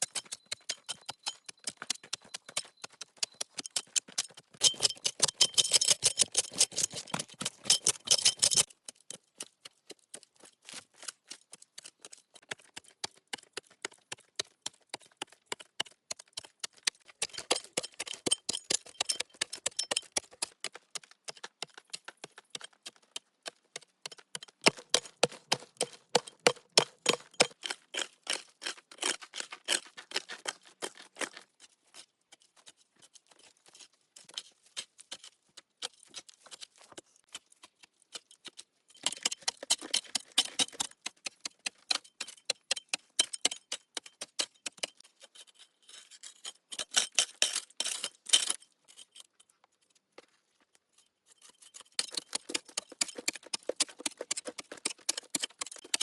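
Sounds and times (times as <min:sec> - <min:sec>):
sharp clicks and knocks: 0:00.0 - 0:10.2, 0:38.1 - 0:45.0, 0:51.9 - 0:56.0.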